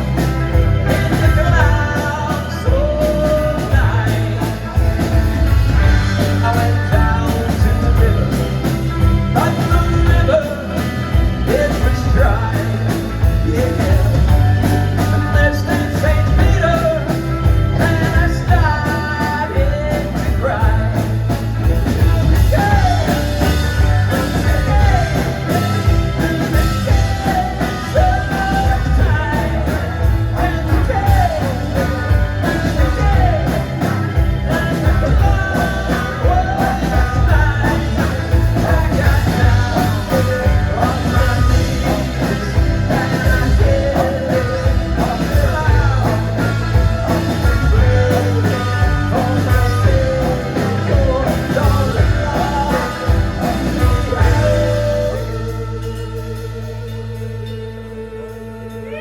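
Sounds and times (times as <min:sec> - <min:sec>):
driving drum beat: 0:00.0 - 0:57.6
live rock band playing: 0:00.0 - 0:59.0
sung and shouted vocals: 0:22.0 - 0:57.3.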